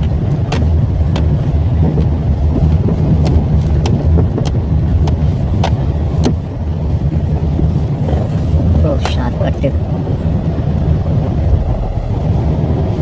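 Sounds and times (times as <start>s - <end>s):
car engine and road rumble: 0.0s - 13.0s
knocks and rattles over potholes: 0.0s - 13.0s.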